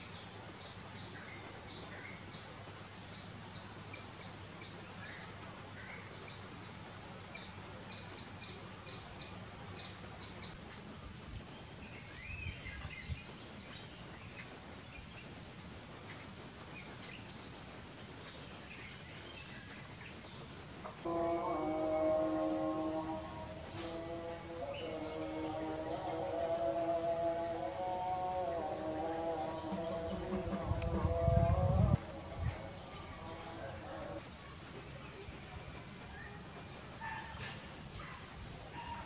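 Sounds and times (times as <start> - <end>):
steady background hiss: 0.0 - 39.0
birds chirping: 16.0 - 37.4
lower sliding bird notes: 21.0 - 34.2.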